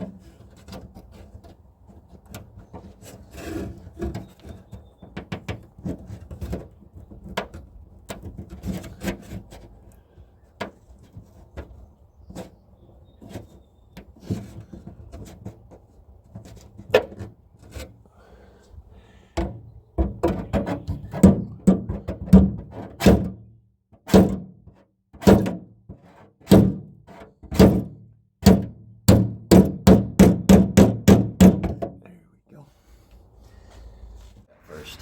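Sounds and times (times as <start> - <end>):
metal car body thunks: 19.4 - 23.4, 24.1 - 24.6, 25.2 - 25.7, 26.5 - 32.0.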